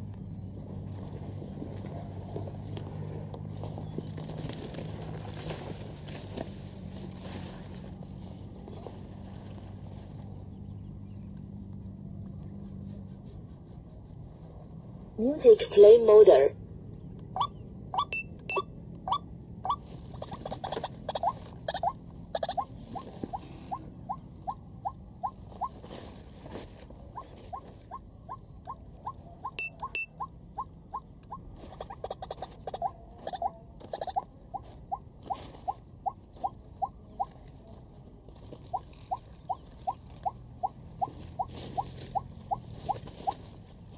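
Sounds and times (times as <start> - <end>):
high insect hum: 0.0 - 43.9
waterhen calling: 29.0 - 30.3.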